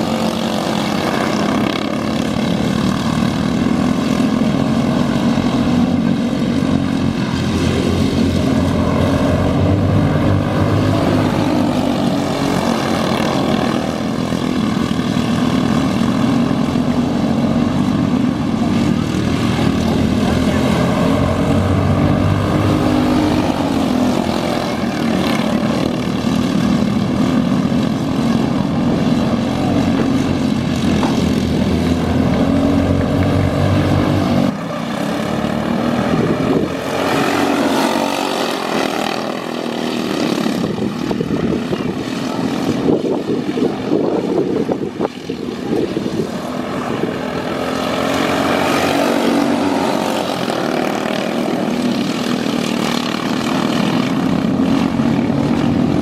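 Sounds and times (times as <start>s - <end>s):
kart engines racing: 0.0s - 56.0s.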